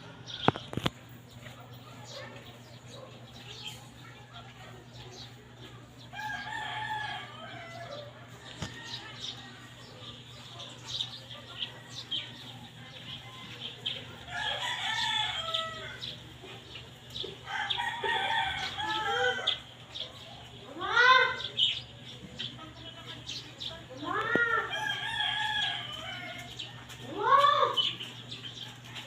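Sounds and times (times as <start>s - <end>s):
rooster crowing: 6.1s - 9.3s, 14.3s - 16.1s, 17.4s - 19.6s.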